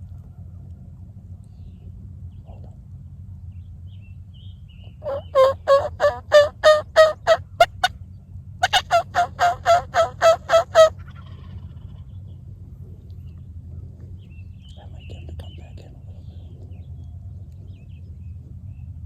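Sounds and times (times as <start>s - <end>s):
turkey yelping: 5.0s - 7.9s, 8.6s - 11.9s.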